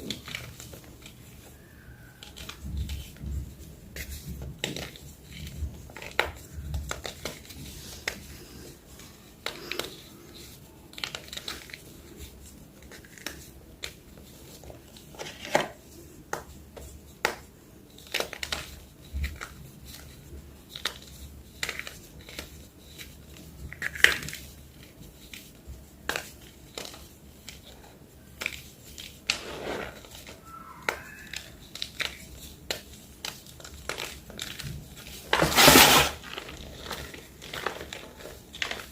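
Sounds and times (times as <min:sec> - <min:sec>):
chalk blocks crunching and snapping: 0:28.3 - 0:38.9.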